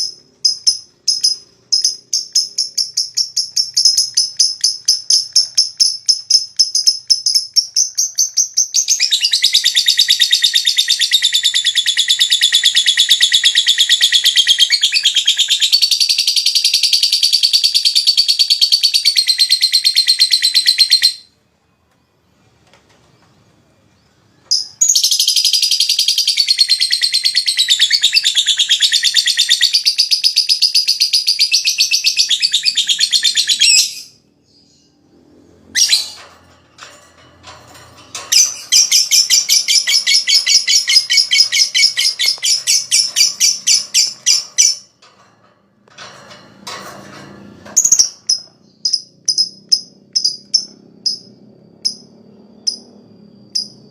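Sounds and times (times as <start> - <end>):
lovebird rattling chatter: 35.8 - 50.7.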